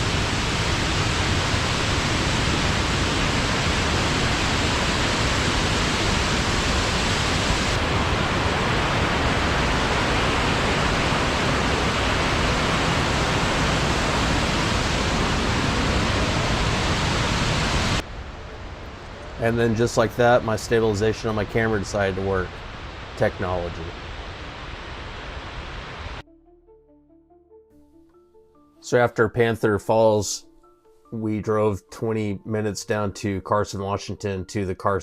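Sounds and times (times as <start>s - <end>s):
waterfall rushing: 0.0s - 18.0s, 19.4s - 26.2s.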